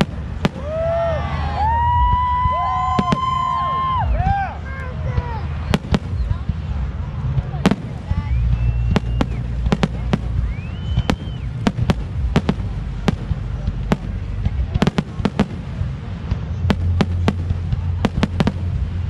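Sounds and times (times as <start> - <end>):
whistling rocket: 0.0 - 4.3, 7.9 - 12.1
fireworks bangs and crackles: 0.0 - 19.0
low rumble: 0.0 - 19.0.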